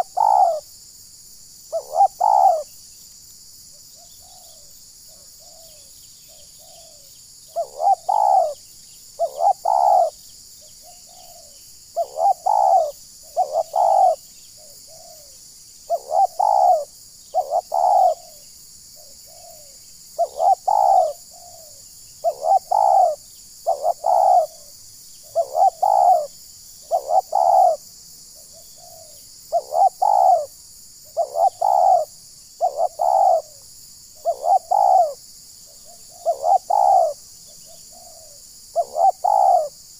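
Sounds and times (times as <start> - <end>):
dove cooing: 0.0 - 0.7, 1.7 - 2.7, 4.0 - 8.6, 9.2 - 18.4, 19.0 - 27.8, 28.4 - 30.5, 31.1 - 33.6, 34.2 - 39.8.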